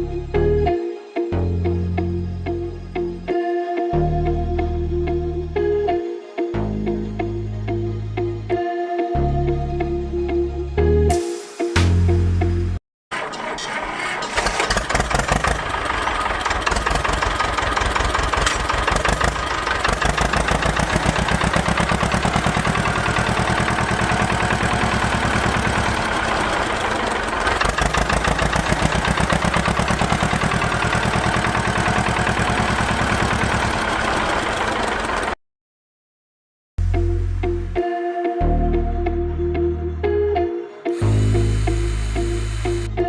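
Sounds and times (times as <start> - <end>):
small engine running: 13.2 - 35.4, 40.9 - 43.0.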